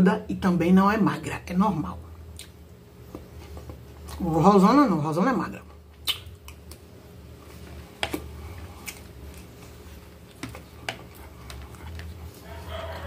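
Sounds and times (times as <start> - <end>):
mouth clicks: 6.0 - 6.8
close chewing: 6.0 - 13.0.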